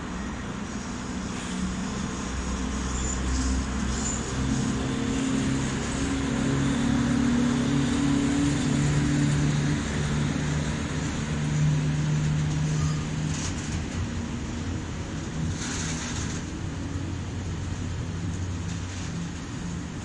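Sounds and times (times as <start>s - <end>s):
electric locomotive hum: 0.0s - 20.0s
freight wagons rumbling by: 0.0s - 20.0s
short hisses: 1.3s - 1.9s.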